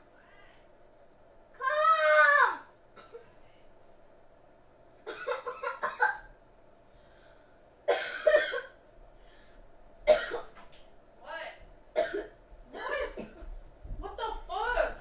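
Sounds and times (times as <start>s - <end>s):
child coughing: 3.0s - 3.2s, 5.1s - 6.3s, 7.9s - 8.8s, 10.1s - 10.6s, 12.0s - 13.5s.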